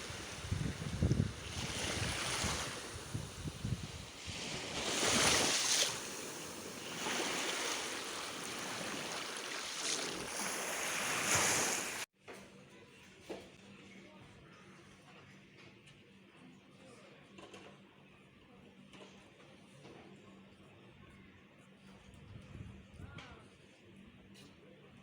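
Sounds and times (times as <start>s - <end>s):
wind rumbling on microphone: 0.0s - 12.0s, 22.2s - 23.2s
waves washing onto beach: 0.0s - 12.1s.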